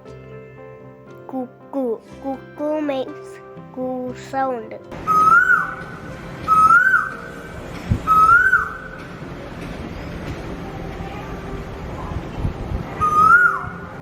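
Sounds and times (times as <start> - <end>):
cuckoo calling: 5.0 - 9.2, 12.8 - 14.0.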